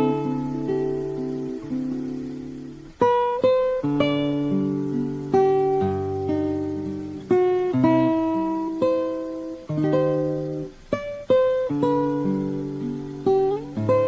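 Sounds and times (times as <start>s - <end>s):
plucked acoustic guitar melody: 0.0s - 14.0s.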